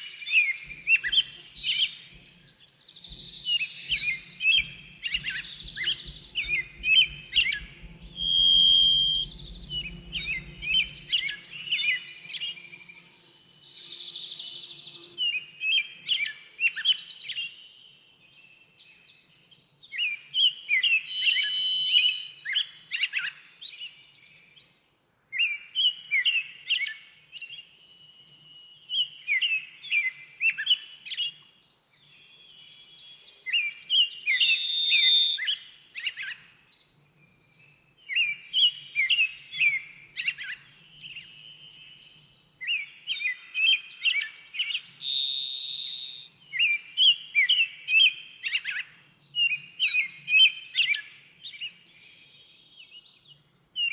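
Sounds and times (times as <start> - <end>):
high bird trills: 0.0 - 12.6, 34.4 - 35.6, 44.7 - 46.9
songbirds chirping: 0.0 - 15.6, 27.4 - 49.8.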